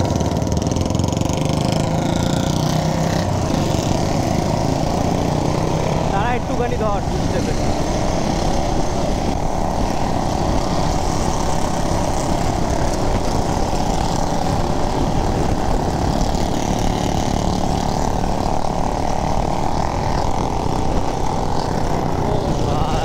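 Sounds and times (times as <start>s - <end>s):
motorcycle engine: 0.0s - 23.0s
wind rushing over microphone: 0.0s - 23.0s.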